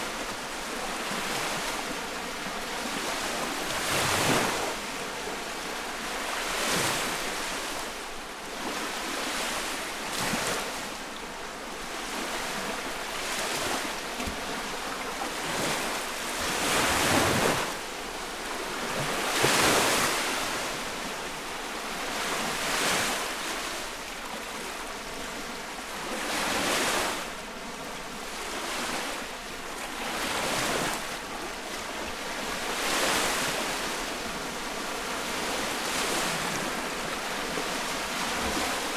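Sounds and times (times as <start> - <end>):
lake waves breaking on shore: 26.0 - 38.9.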